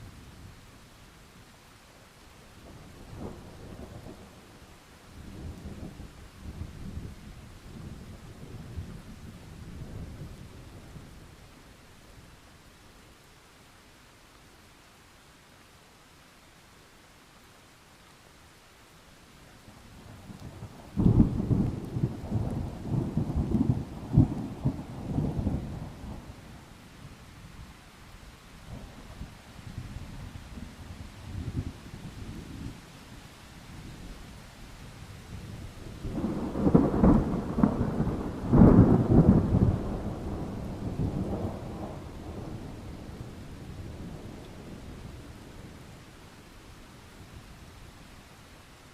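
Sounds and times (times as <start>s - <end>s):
rain hiss: 0.0s - 48.9s
thunder clap and rumble: 20.3s - 26.4s, 35.8s - 44.9s
thunder rolling: 36.0s - 43.4s.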